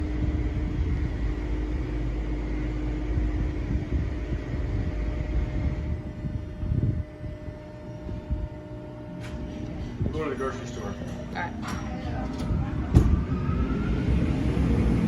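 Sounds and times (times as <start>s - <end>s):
car engine rumble: 0.0s - 15.0s
constant hum: 0.0s - 15.0s
road noise inside car: 10.9s - 15.0s.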